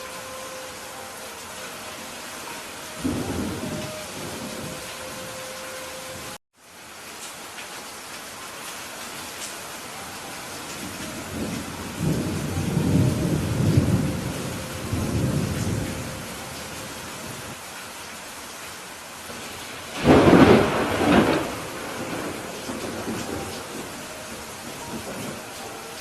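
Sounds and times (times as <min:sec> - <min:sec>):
steady rain: 0:00.0 - 0:26.0
low roll of thunder: 0:03.0 - 0:05.0, 0:11.0 - 0:16.5, 0:19.9 - 0:25.5
loud thunderclap: 0:20.0 - 0:23.9.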